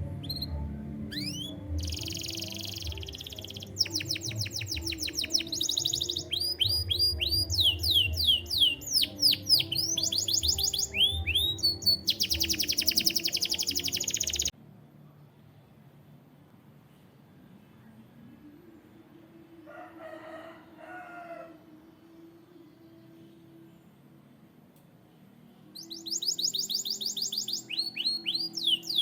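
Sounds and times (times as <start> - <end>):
canary singing trills: 0.0 - 14.5, 25.8 - 29.0.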